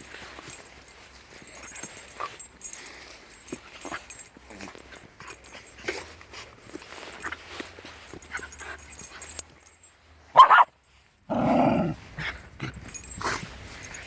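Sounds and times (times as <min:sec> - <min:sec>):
dogs scuffling: 0:00.0 - 0:09.8, 0:12.0 - 0:14.0
small dogs yipping: 0:10.3 - 0:10.7
dog barking sharply: 0:10.4 - 0:10.7
dog growling bark: 0:11.3 - 0:12.0.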